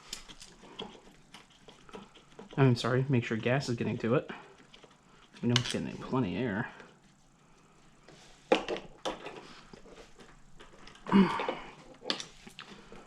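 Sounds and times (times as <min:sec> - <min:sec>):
person clearing throat: 0:11.0 - 0:11.8.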